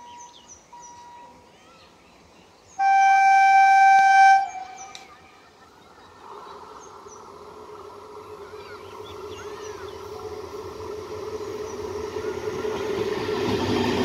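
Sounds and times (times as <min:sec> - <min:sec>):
electric train running hum: 0:00.0 - 0:14.0
train horn blast: 0:02.8 - 0:05.1.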